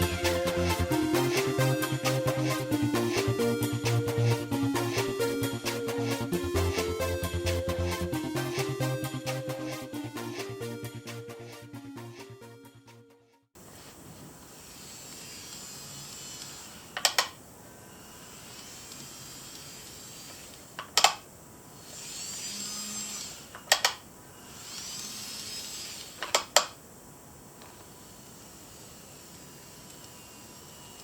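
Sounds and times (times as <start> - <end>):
model train motor whine: 0.0 - 8.8, 14.5 - 17.2, 17.8 - 20.8, 21.7 - 26.5, 27.6 - 31.0.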